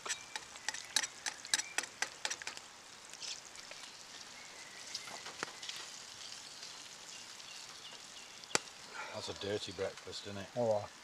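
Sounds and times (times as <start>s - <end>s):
eggs frying in oil: 0.0s - 11.0s.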